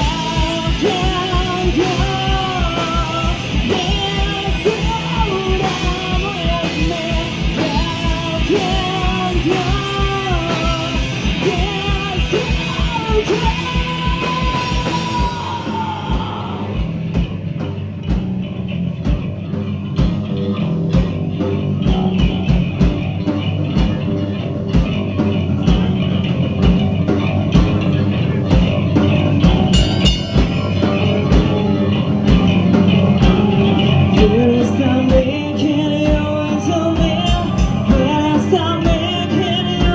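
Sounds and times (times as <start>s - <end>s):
person singing: 0.0s - 17.0s, 27.1s - 39.9s
rock band playing: 0.0s - 39.9s.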